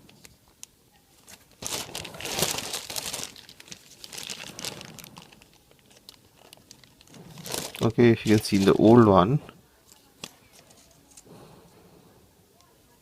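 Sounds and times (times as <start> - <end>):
plastic packaging crinkling: 1.2 - 9.3.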